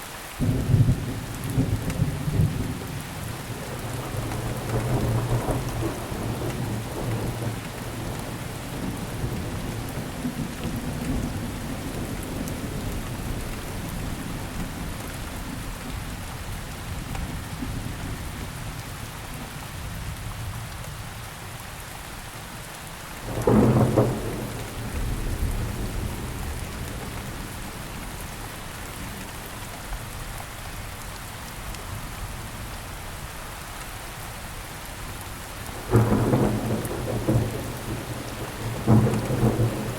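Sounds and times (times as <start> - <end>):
steady rain falling: 0.0 - 39.9
rumbling thunder: 0.4 - 15.6, 23.2 - 28.4, 35.8 - 39.9
loud thunderclap: 23.3 - 27.4, 35.8 - 39.9.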